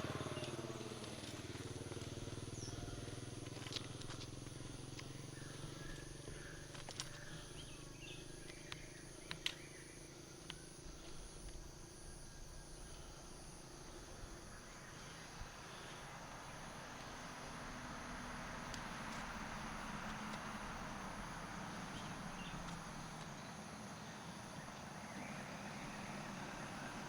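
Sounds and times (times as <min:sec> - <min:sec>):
low engine hum: 0:00.0 - 0:11.7, 0:12.8 - 0:27.0
insect buzz: 0:00.0 - 0:27.0
bird chirps: 0:05.0 - 0:10.8, 0:21.7 - 0:27.0.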